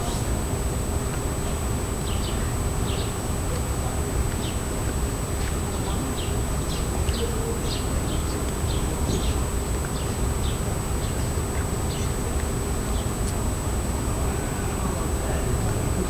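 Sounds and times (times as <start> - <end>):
faint high whine: 0.0 - 16.0
small birds chirping: 1.1 - 13.5.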